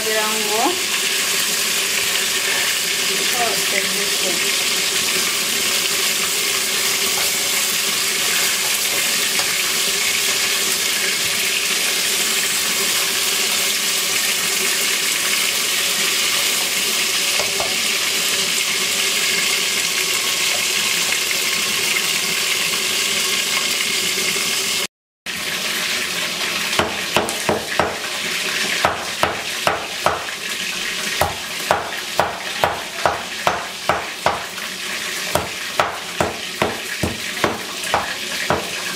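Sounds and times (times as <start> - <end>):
chicken wings sizzling in a pan: 0.0 - 38.9
utensil knocking against pan: 17.4 - 17.8, 26.8 - 28.1, 28.8 - 30.4, 31.2 - 34.6, 35.3 - 38.9.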